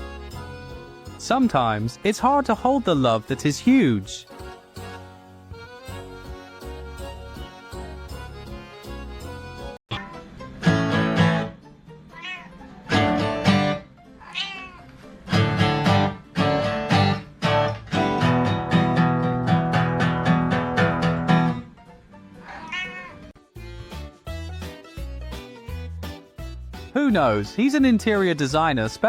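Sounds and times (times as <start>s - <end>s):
background music: 0.0s - 29.0s
cat meowing: 9.9s - 10.2s, 12.1s - 12.7s, 14.2s - 15.0s, 22.4s - 23.3s.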